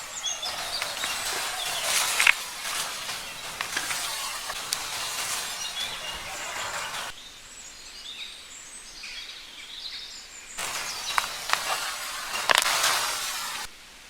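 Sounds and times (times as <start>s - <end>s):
hiss: 0.0s - 7.2s, 10.6s - 13.9s
birds chirping: 0.0s - 13.7s.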